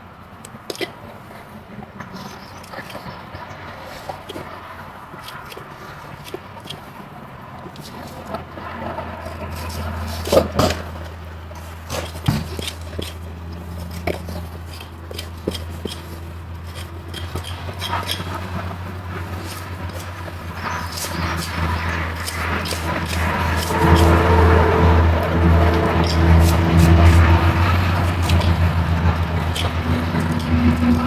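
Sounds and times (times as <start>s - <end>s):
scrapes and knocks: 7.6s - 31.0s
low motor hum: 12.7s - 31.0s.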